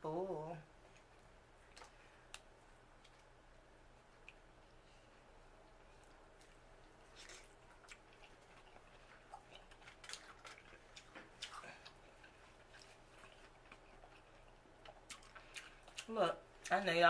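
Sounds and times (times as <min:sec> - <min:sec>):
chewing clicks and smacks: 0:04.1 - 0:04.4, 0:05.7 - 0:16.8.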